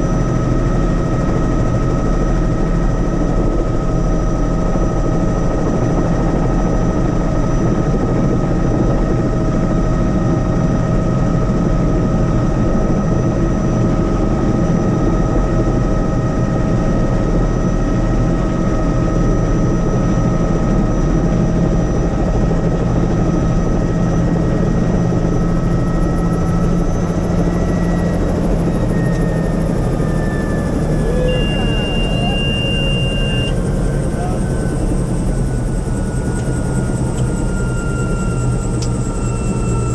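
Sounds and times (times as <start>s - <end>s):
helicopter engine and rotor: 0.0s - 39.9s
high whine: 25.5s - 39.9s.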